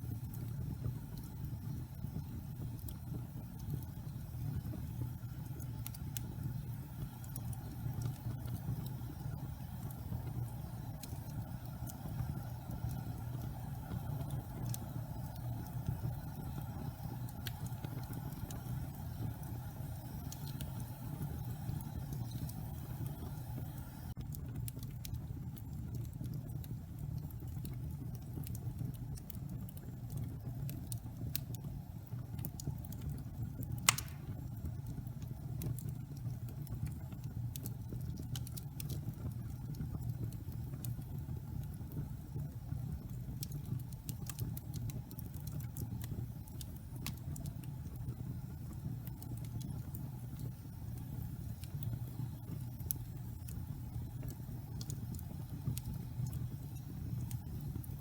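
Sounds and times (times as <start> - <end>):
wood fire crackling: 0.0 - 58.0
loud pop of fire: 33.8 - 34.5.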